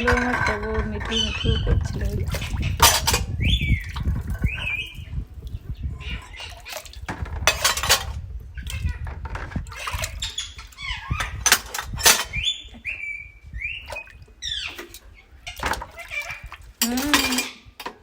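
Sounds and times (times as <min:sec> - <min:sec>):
parakeet squawking: 0:00.0 - 0:03.8, 0:05.9 - 0:06.8
dishes and cutlery clattering: 0:00.0 - 0:04.8, 0:06.3 - 0:08.2, 0:11.2 - 0:12.5, 0:15.6 - 0:18.0
water splashing: 0:00.0 - 0:08.2.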